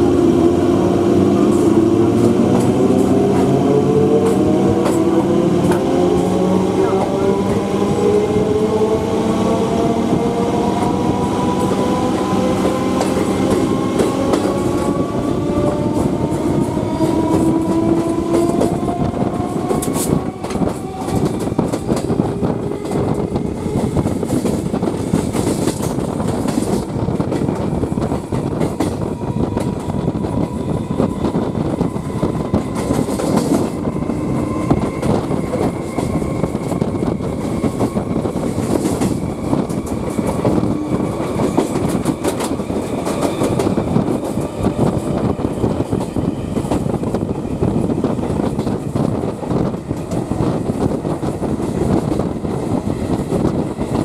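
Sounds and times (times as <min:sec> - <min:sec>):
train wheels clattering over rail joints: 0:15.9 - 0:54.0.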